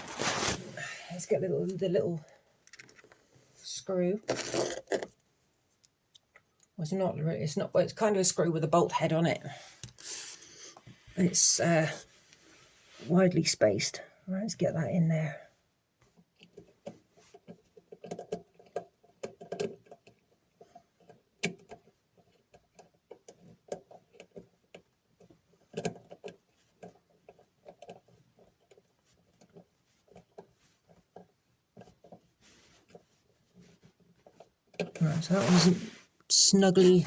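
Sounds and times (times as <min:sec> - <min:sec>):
small metal parts clicking: 0:17.4 - 0:32.2.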